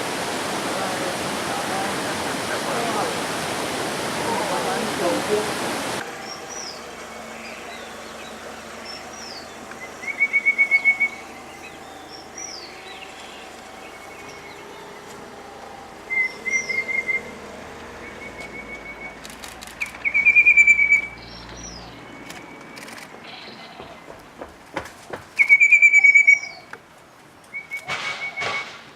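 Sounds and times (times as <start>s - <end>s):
bird trills: 6.1s - 15.1s, 16.0s - 24.2s, 25.4s - 26.7s.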